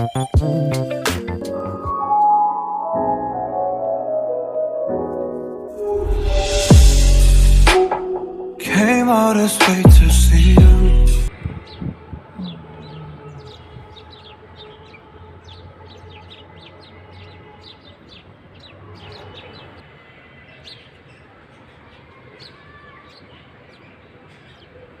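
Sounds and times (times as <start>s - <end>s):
small birds chirping: 0.0s - 1.9s, 8.8s - 25.0s.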